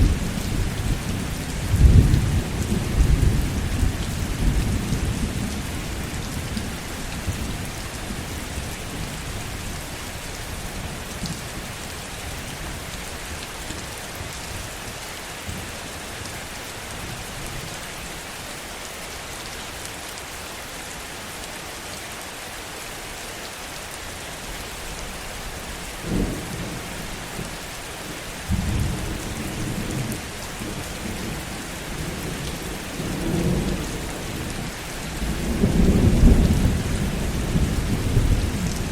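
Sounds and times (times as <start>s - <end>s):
low thunder rumbling: 0.0s - 6.6s, 28.5s - 38.9s
heavy rain hissing: 0.0s - 38.9s.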